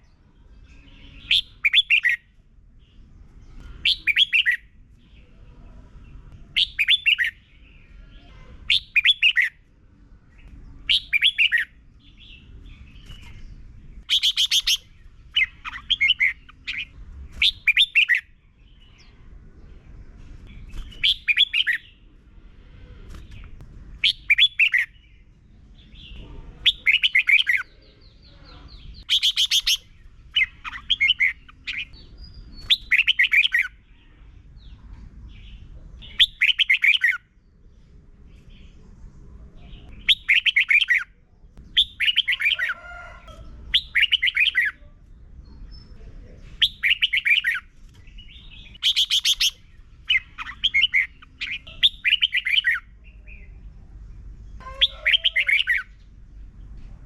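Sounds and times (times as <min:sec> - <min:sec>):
bird singing warbling whistles: 0:29.1 - 0:29.8.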